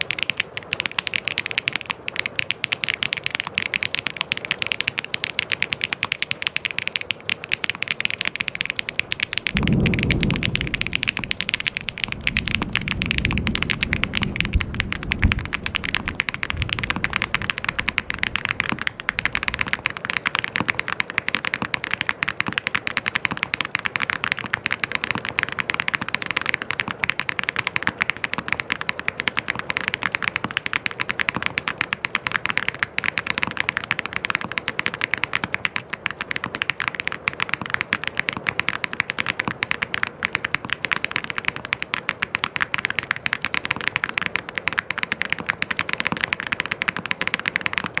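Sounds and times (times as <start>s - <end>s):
mechanical keyboard typing: 0.0s - 48.0s
deeper thumps: 9.5s - 15.6s.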